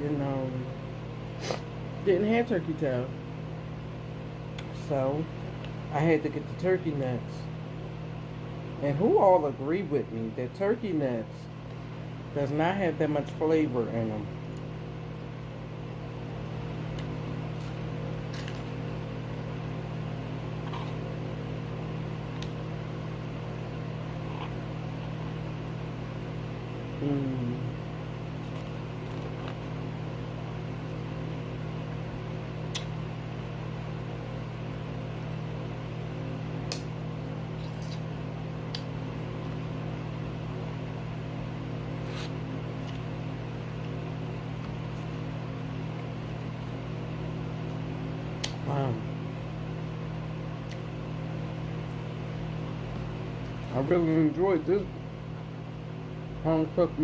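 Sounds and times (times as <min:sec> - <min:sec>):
appliance mechanical hum: 0:00.0 - 0:57.0.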